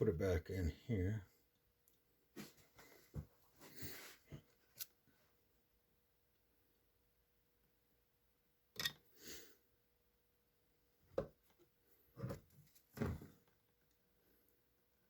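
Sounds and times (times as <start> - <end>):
clicks and knocks of small tools: 8.8 - 9.0.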